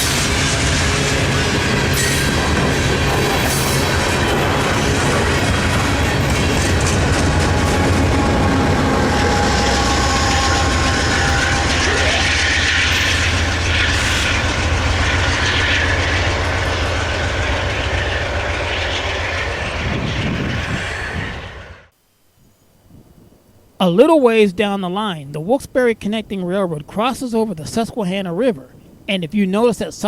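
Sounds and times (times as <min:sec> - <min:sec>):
train rumbling past: 0:00.0 - 0:21.9
wheel-on-rail noise: 0:00.0 - 0:21.9
faint thin squeals: 0:09.1 - 0:12.2.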